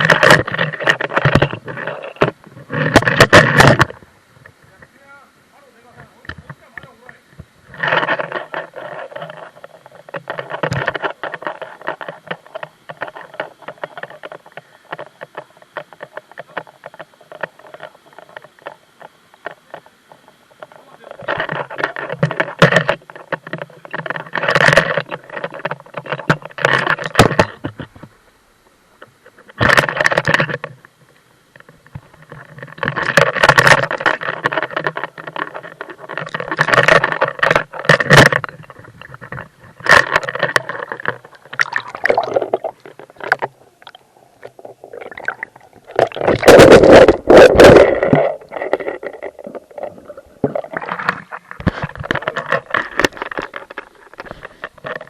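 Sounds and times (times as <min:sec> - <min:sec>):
water splashing and sloshing: 0:31.5 - 0:55.0.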